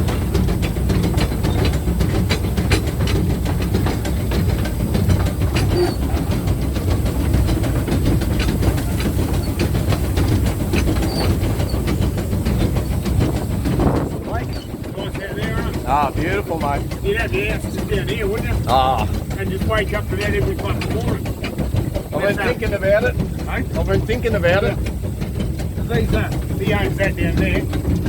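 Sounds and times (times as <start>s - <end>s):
steam locomotive rumble: 0.0s - 28.0s
wheels clicking over rails: 0.0s - 28.0s.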